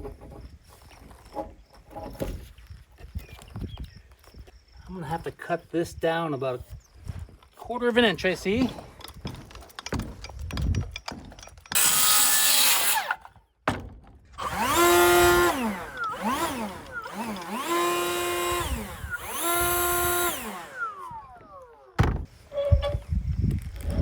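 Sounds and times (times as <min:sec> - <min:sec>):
power tool motor revving: 0:11.8 - 0:13.2, 0:14.4 - 0:22.0
power tool cutting wood: 0:11.8 - 0:13.3, 0:14.4 - 0:22.1.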